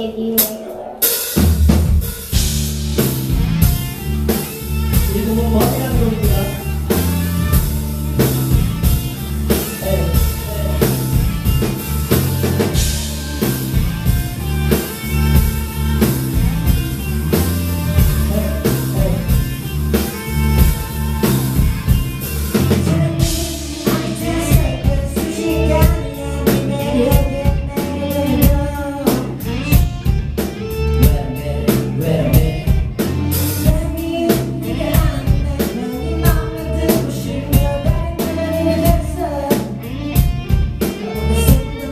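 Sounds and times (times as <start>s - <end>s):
pop music over sound system: 3.5s - 41.9s
man singing: 5.0s - 7.0s, 9.6s - 11.2s, 18.0s - 19.6s, 22.6s - 29.8s, 30.8s - 39.9s, 40.8s - 41.9s.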